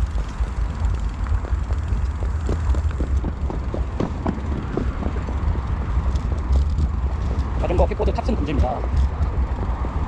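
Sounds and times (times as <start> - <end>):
short irregular ticks: 0.0 - 10.0
wind rumbling on microphone: 0.0 - 10.0.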